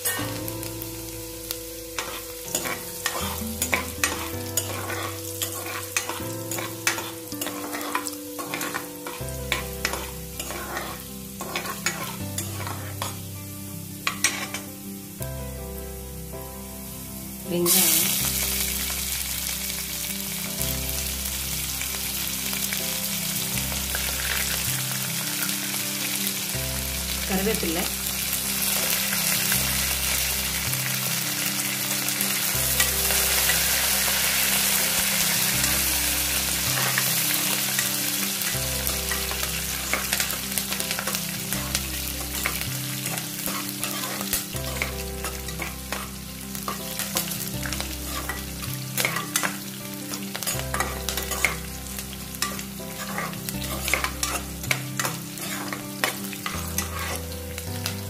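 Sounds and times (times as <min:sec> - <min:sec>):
food sizzling in hot oil: 0:00.0 - 0:58.0
ladle scraping metal pot: 0:02.0 - 0:13.1, 0:53.0 - 0:54.4, 0:56.7 - 0:57.2.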